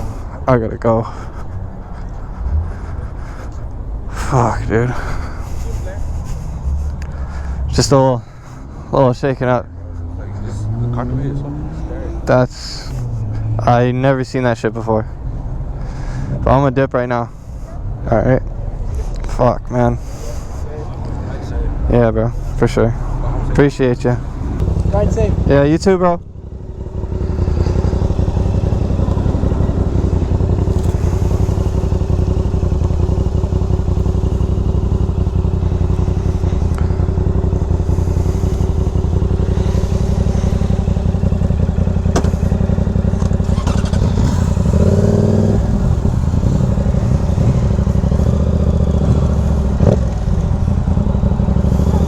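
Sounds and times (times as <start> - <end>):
motorcycle engine running: 24.3 - 52.0.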